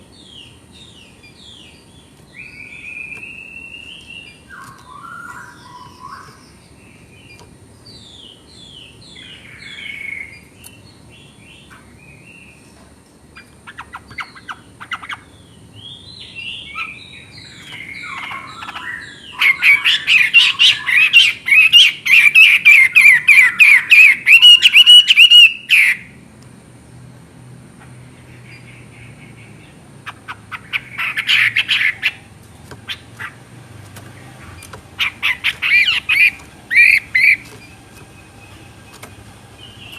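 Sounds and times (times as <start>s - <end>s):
fast run of repeated bird notes: 0.0s - 12.6s, 13.3s - 26.2s, 28.0s - 39.9s
bird singing whistled phrases: 2.4s - 6.4s, 15.9s - 26.0s.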